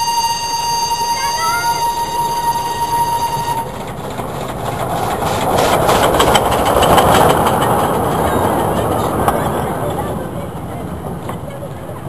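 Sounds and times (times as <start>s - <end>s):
steady horn tone: 0.0s - 3.7s
train rumble: 0.0s - 12.0s
toy train wheels clicking on rails: 3.3s - 9.0s.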